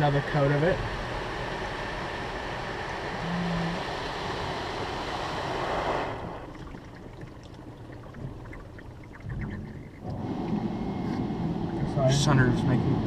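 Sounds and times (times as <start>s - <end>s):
car wash water spray hissing: 1.0s - 6.4s.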